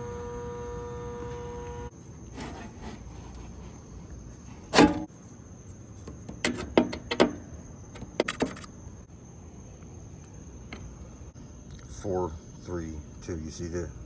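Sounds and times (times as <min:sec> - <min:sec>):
faint high whine: 0:00.0 - 0:05.1.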